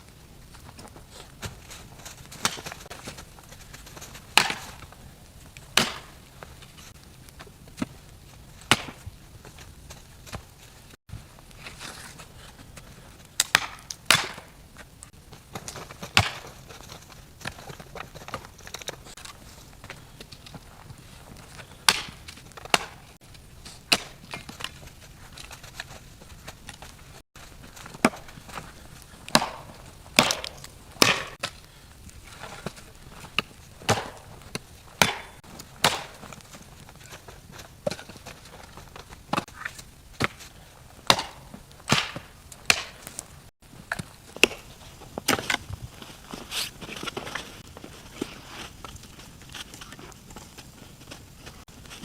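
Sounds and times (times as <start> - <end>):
firewood knocks and cracks: 0.5 - 7.9, 8.5 - 10.7, 11.5 - 46.0
wood being chopped: 2.1 - 3.2, 4.0 - 4.9, 5.6 - 6.2, 8.7 - 9.0, 13.4 - 14.6, 15.5 - 18.9, 21.8 - 23.1, 23.8 - 24.8, 27.8 - 28.6, 29.2 - 31.6, 32.4 - 36.5, 39.0 - 43.2, 43.9 - 45.6.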